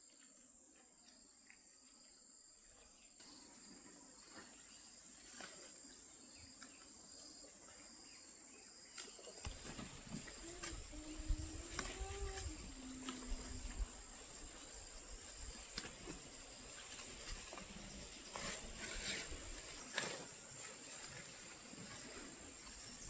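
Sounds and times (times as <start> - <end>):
insect chorus: 0.0 - 23.0.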